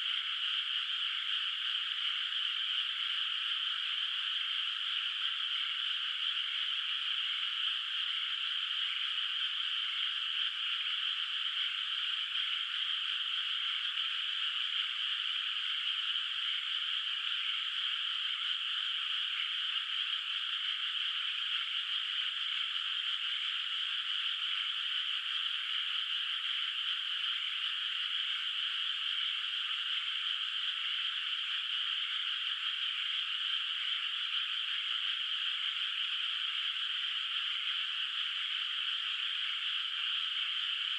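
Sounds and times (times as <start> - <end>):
chorus of frogs calling: 0.0 - 40.9.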